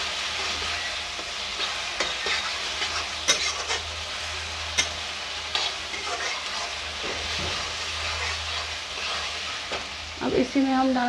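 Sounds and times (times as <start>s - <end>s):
onion sizzling in hot oil: 0.0s - 11.0s
metal spatula scraping pan: 0.4s - 3.9s, 4.7s - 9.8s.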